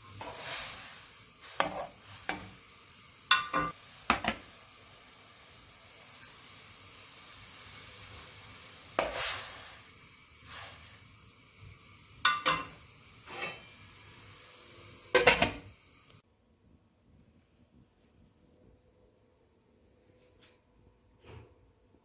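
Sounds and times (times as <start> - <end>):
food sizzling in a frying pan: 0.0 - 16.2.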